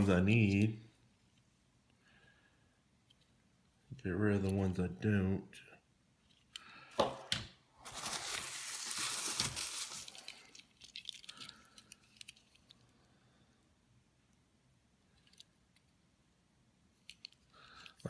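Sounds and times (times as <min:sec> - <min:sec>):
packaging wrap crinkling: 0:07.8 - 0:12.6.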